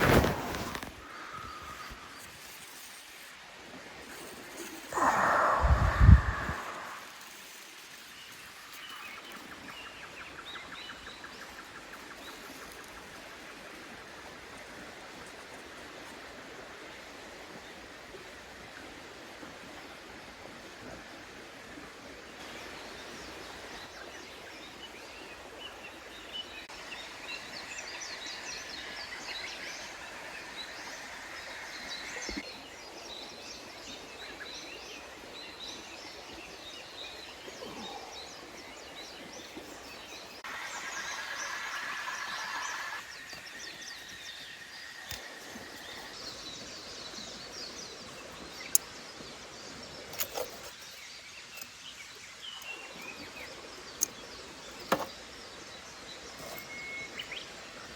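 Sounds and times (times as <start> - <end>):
stream water rushing: 0.0 - 10.3, 25.4 - 57.9.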